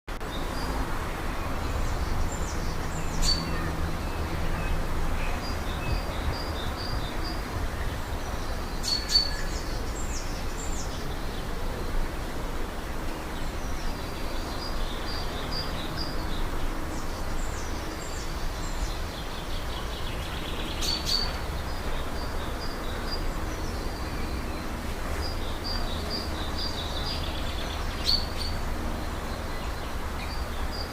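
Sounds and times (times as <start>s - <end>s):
bird chirps and trills: 1.8s - 7.4s, 8.4s - 11.0s, 14.3s - 30.9s.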